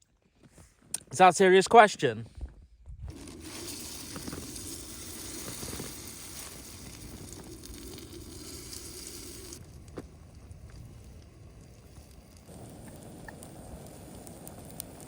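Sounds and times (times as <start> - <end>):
dough sizzling in a pan: 3.1 - 15.0.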